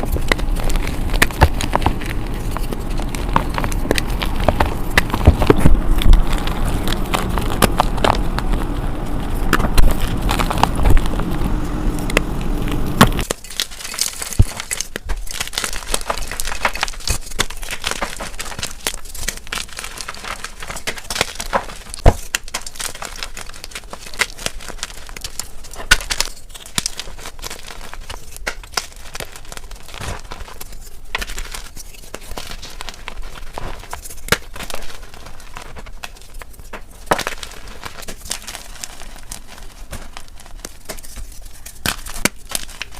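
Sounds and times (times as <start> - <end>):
chalk being crushed: 0.0 - 42.9.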